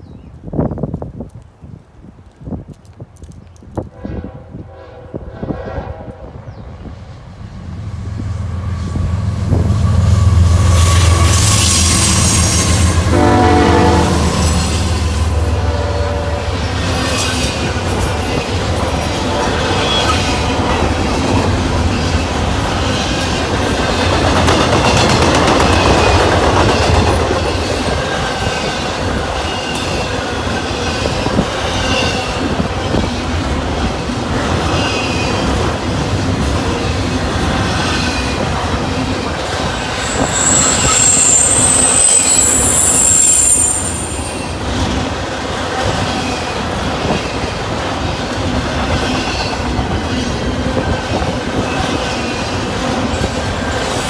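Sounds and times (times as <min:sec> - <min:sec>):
train wheels rumbling on rails: 0:00.0 - 0:54.0
high wheel squeal: 0:07.2 - 0:13.1, 0:14.3 - 0:20.8, 0:39.8 - 0:44.7.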